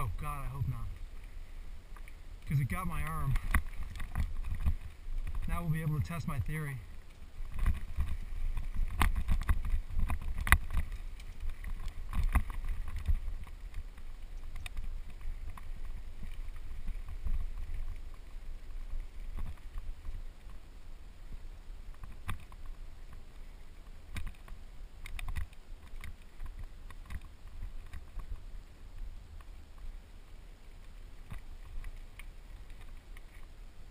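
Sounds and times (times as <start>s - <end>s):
low rumble of wind and ground: 0.0s - 33.9s
bike clicks and rattles: 6.9s - 18.4s, 24.1s - 28.4s.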